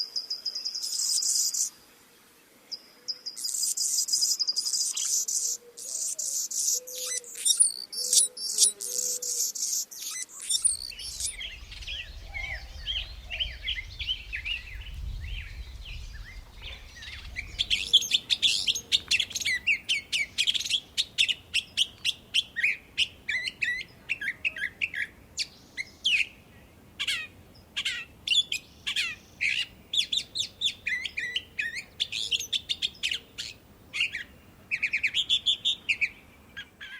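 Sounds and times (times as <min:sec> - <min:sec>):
small birds chirping: 0:00.0 - 0:01.8, 0:02.7 - 0:36.9
low rumble: 0:10.9 - 0:18.5.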